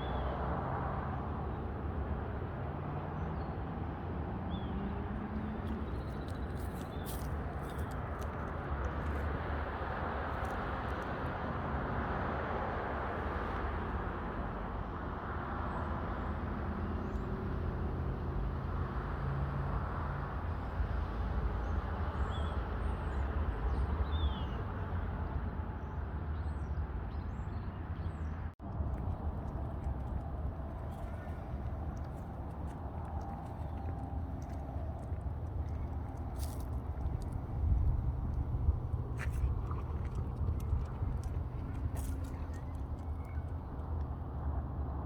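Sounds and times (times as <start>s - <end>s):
low rumble: 28.6s - 45.0s.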